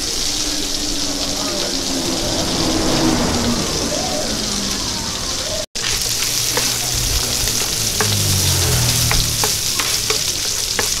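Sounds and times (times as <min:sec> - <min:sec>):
fried rice sizzling on griddle: 0:05.8 - 0:11.0
spatulas scraping pan: 0:05.8 - 0:11.0
spatulas tapping pan: 0:05.8 - 0:11.0.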